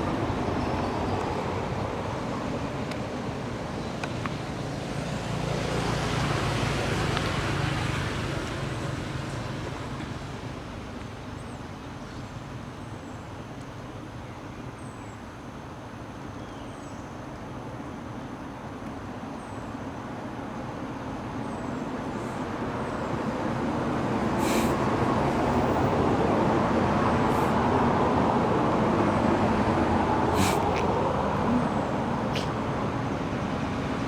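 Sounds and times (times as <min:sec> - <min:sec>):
road traffic rumble: 0:00.0 - 0:16.4, 0:17.3 - 0:34.0
vehicle passing: 0:24.4 - 0:34.0.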